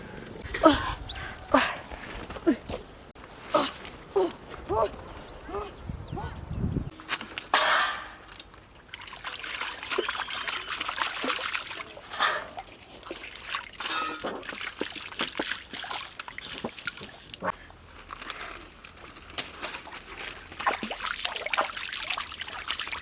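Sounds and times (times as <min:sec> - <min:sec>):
water sloshing and splashing: 0:06.9 - 0:23.0.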